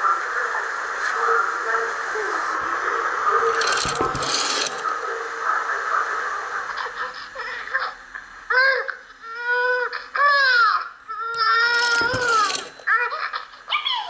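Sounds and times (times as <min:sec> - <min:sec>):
rotary phone dial rattling: 0:03.5 - 0:05.0, 0:11.3 - 0:12.9.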